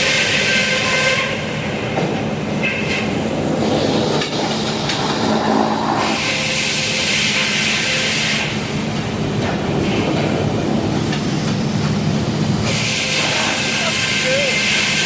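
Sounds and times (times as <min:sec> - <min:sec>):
saw blade rasping through wood: 0:12.7 - 0:15.0.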